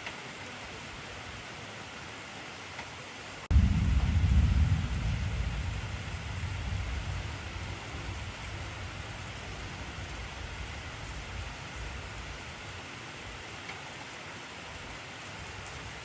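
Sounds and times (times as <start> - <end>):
heavy rain hiss: 0.0 - 16.0
low thunder rumble: 3.5 - 12.8.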